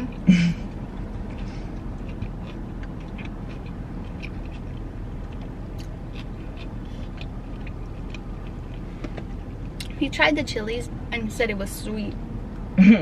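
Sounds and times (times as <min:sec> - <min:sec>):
steady low hum: 0:00.0 - 0:13.0
wet chewing clicks and smacks: 0:00.1 - 0:09.9.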